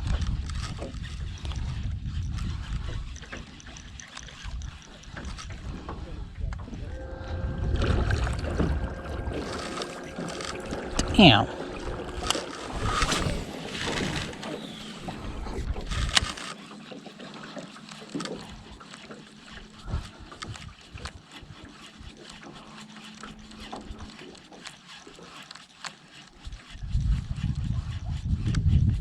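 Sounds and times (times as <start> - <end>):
faint steady hum: 6.8 - 15.2.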